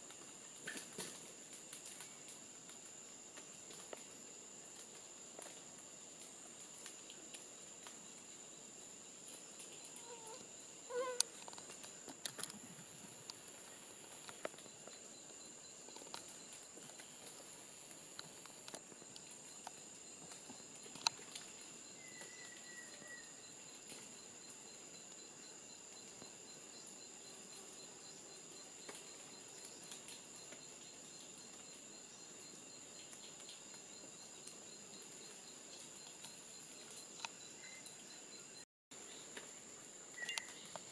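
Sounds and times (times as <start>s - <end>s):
cricket trilling: 0.0s - 40.9s
high-pitched insect drone: 9.7s - 39.2s, 39.8s - 40.9s.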